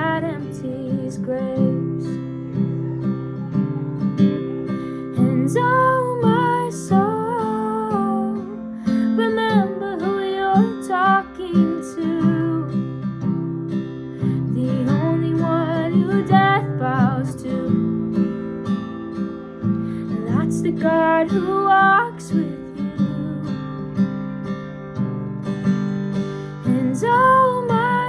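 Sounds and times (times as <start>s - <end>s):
person singing: 0.0s - 3.7s, 4.7s - 13.0s, 14.3s - 18.0s, 20.0s - 23.8s, 26.7s - 28.0s
strummed acoustic guitar: 0.0s - 28.0s.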